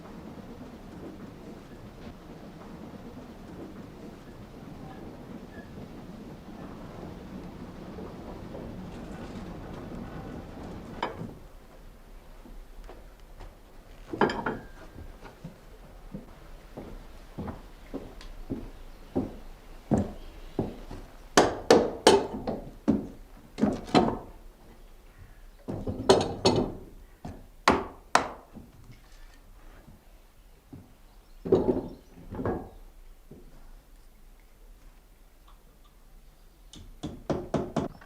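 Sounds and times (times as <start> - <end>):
heavy knocks on wood: 19.2 - 24.3.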